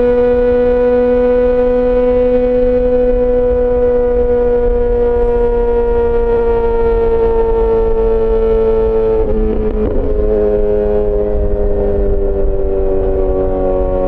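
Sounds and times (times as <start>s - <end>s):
motorcycle engine easing off: 0.0s - 14.0s.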